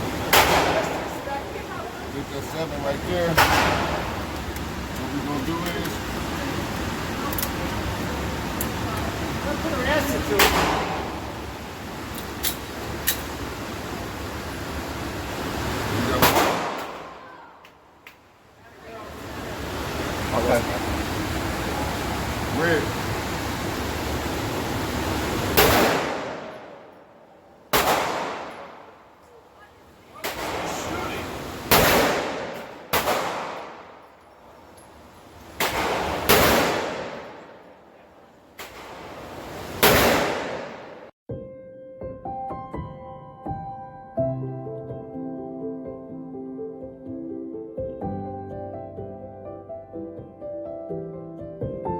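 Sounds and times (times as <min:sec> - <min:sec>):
steady background hiss: 0:00.0 - 0:41.2
gunshot: 0:00.3 - 0:01.2, 0:03.4 - 0:04.2, 0:10.4 - 0:11.2, 0:16.1 - 0:17.2, 0:25.6 - 0:26.8, 0:27.7 - 0:28.9, 0:30.2 - 0:30.9, 0:31.7 - 0:34.0, 0:35.6 - 0:37.6, 0:39.8 - 0:41.1
loud pistol shots: 0:00.3 - 0:01.2, 0:03.3 - 0:04.2, 0:10.4 - 0:11.3, 0:16.1 - 0:17.2, 0:25.5 - 0:26.9, 0:27.7 - 0:28.9, 0:30.2 - 0:34.0, 0:35.6 - 0:37.6, 0:39.8 - 0:41.1.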